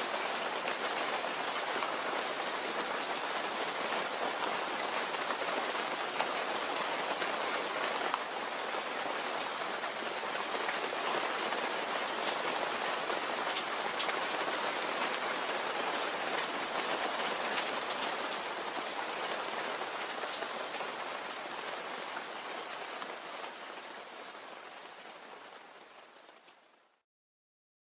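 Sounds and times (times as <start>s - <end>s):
steady rainfall: 0.0s - 27.0s.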